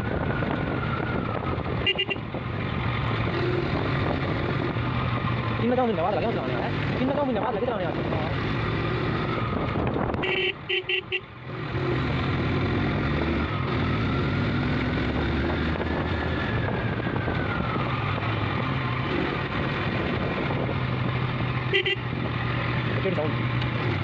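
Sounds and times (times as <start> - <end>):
road noise: 0.0 - 24.0
horn toots: 1.8 - 2.2, 10.2 - 11.3, 21.7 - 22.1.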